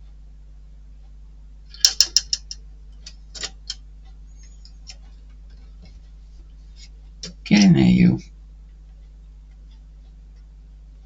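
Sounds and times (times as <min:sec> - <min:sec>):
small plastic parts clicking: 0:01.7 - 0:03.8.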